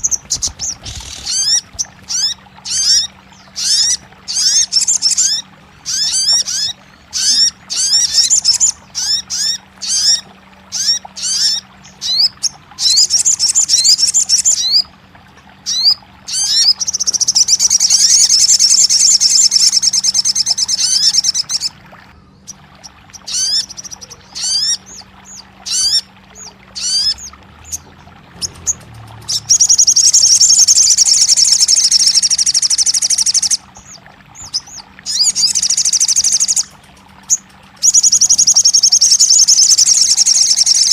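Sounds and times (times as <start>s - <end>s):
bird trilling: 0.0s - 14.8s, 22.4s - 40.9s
bird chirping: 23.2s - 40.9s.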